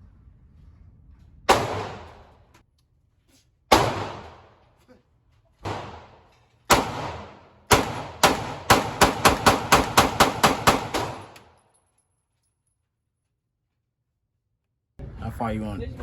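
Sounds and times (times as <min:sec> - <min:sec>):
gunshots with echo: 0:01.5 - 0:02.3, 0:03.7 - 0:04.6, 0:05.6 - 0:11.4.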